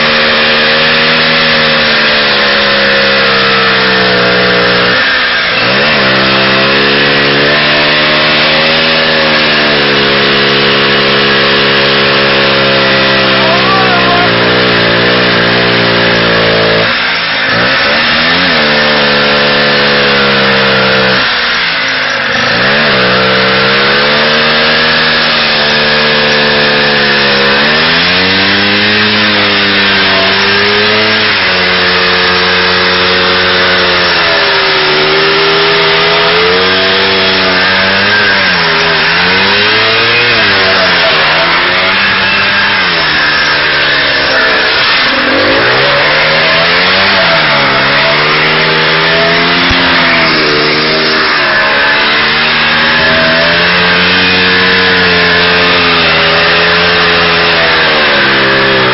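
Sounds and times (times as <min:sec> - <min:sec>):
two-stroke engine revving: 0:00.0 - 0:58.9.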